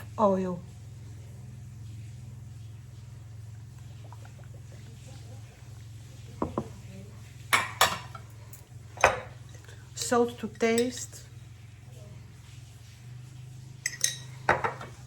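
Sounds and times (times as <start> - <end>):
steady low hum: 0.0 - 15.0
dishes clinking: 6.3 - 6.9, 7.5 - 9.5, 10.6 - 11.2, 13.8 - 15.0
dishes knocking: 6.4 - 6.8, 7.6 - 8.2, 9.0 - 9.4, 13.9 - 15.0.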